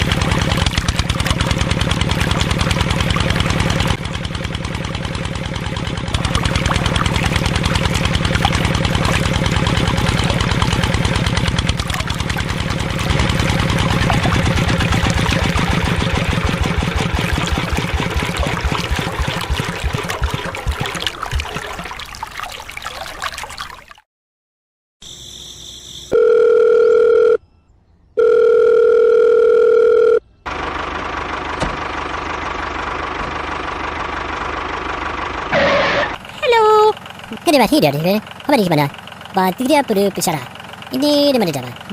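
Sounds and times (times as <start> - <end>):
small diesel engine running: 0.0 - 21.9, 29.6 - 41.9
steady running sound: 0.0 - 22.9.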